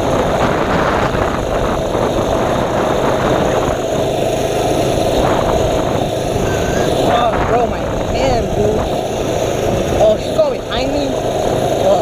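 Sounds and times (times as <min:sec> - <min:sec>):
rush of noise: 0:00.0 - 0:12.0
small engine running: 0:00.0 - 0:12.0.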